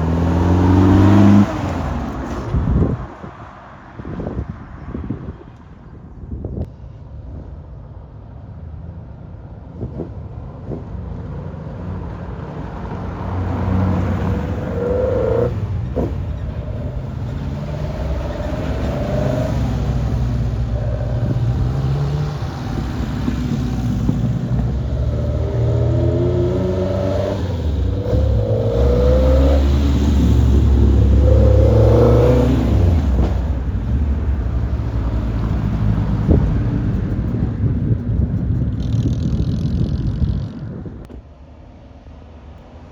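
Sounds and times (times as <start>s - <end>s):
car engines revving and accelerating: 0.0s - 3.7s, 9.9s - 40.1s.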